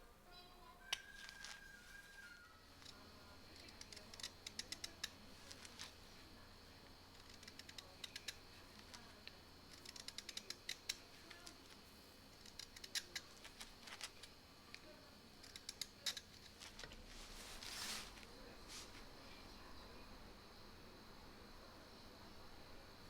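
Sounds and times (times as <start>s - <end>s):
knife shaving wood: 0.9s - 19.2s.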